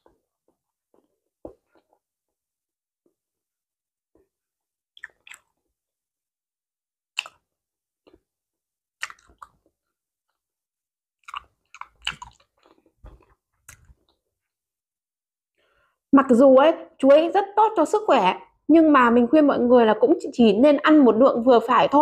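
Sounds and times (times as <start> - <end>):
chewing banana: 5.0 - 5.6, 7.1 - 8.3, 9.0 - 9.8, 11.2 - 14.2.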